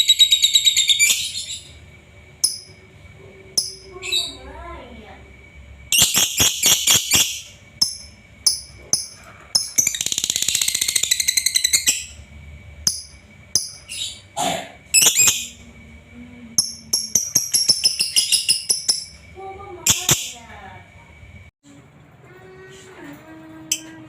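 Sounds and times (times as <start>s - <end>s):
bird chirping: 0.0s - 1.8s, 5.9s - 12.2s, 15.0s - 15.6s, 16.6s - 19.2s
bird rattling trill: 5.9s - 14.3s, 16.6s - 19.2s.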